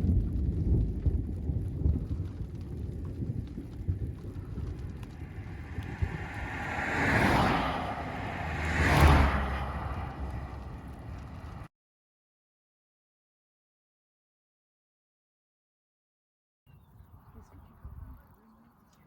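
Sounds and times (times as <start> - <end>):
thunder rumbling: 0.0 - 11.7
wind rumble: 0.0 - 11.7, 16.8 - 19.0
cars passing close by: 4.6 - 11.7.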